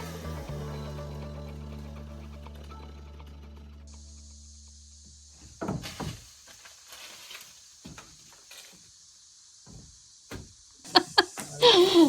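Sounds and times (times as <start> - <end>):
background music: 0.0 - 4.1
steady high hiss: 3.8 - 12.0
knocks and rustles: 5.4 - 8.8.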